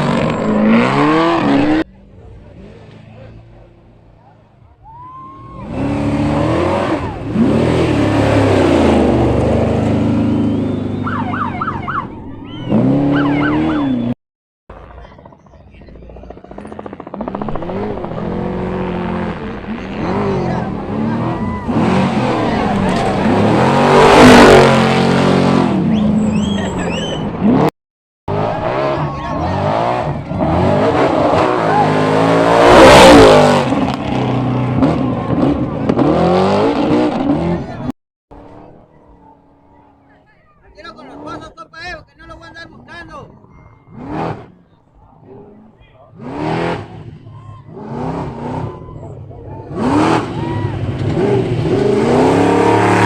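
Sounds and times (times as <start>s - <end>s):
race truck engine revving: 0.0s - 3.8s, 5.4s - 15.2s, 16.2s - 27.7s, 28.3s - 40.2s, 42.5s - 53.0s.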